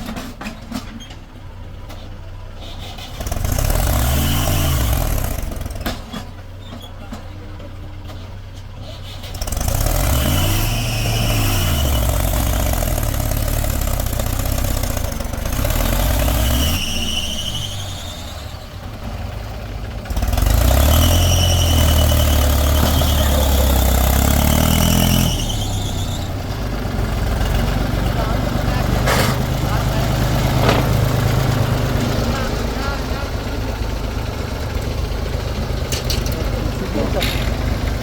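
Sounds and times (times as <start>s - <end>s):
diesel engine revving: 0.0s - 38.0s
high-pitched machine squeal: 15.8s - 18.8s, 20.9s - 23.9s, 24.7s - 26.4s.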